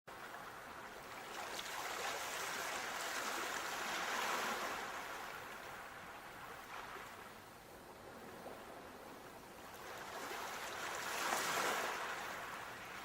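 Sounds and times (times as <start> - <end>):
rush of surf: 1.4 - 7.4, 9.7 - 13.0.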